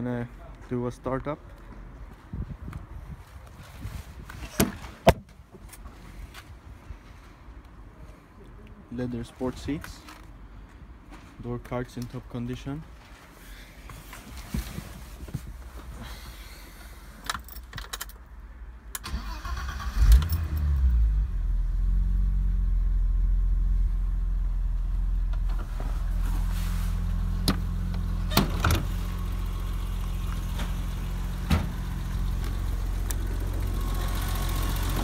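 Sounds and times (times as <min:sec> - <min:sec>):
car engine starting and idling: 0:18.9 - 0:35.0.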